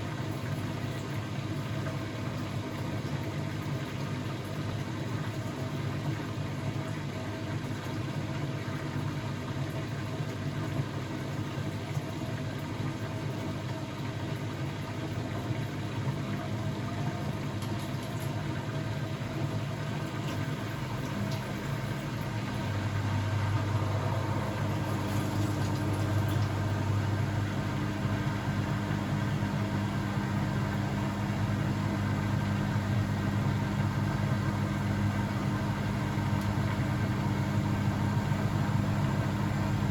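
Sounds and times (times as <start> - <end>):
washing machine humming: 0.0 - 39.9
deeper hum: 20.6 - 39.9.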